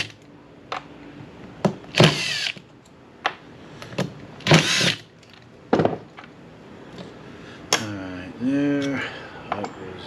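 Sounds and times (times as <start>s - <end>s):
power drill whining: 2.0s - 2.6s, 4.5s - 5.0s.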